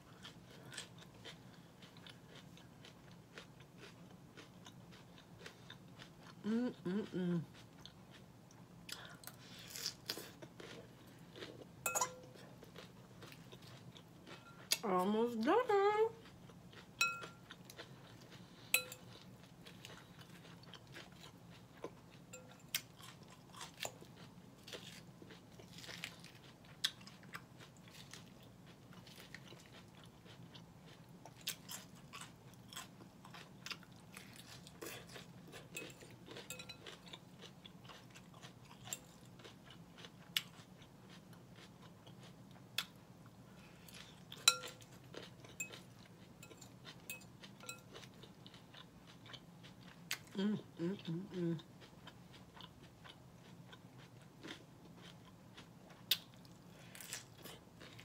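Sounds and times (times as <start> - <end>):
chewing and crunching lettuce: 0.0 - 58.0
metal fork clinking on glass bowl: 11.8 - 12.3, 17.0 - 17.4, 18.8 - 19.1, 35.8 - 36.8, 44.4 - 44.8.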